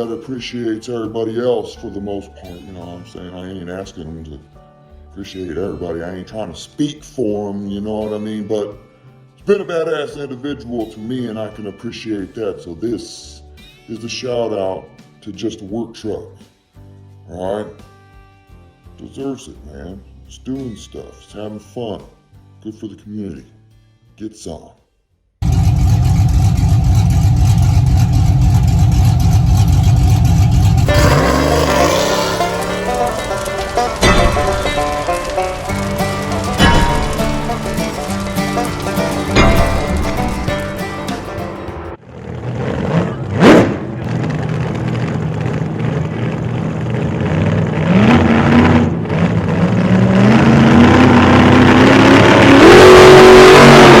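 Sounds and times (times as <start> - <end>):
pickup truck engine rumble: 25.4 - 54.0.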